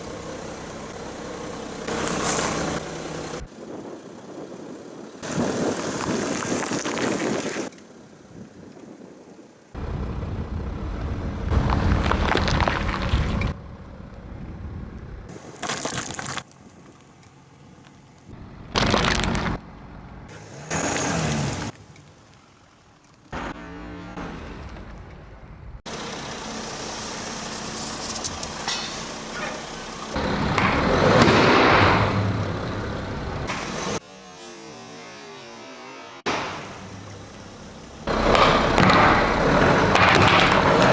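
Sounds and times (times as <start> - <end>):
car engine running: 0.0 - 5.2, 25.9 - 34.0, 36.5 - 40.9
car rolling slowly: 0.0 - 20.3, 21.4 - 34.0, 36.5 - 40.9
short cracks under tyres: 5.2 - 7.9, 11.6 - 13.5, 15.3 - 19.6, 38.3 - 40.9
tyres crunching over objects: 11.6 - 13.5, 15.3 - 17.2, 18.7 - 19.6
tyre crunching an object: 15.4 - 16.6.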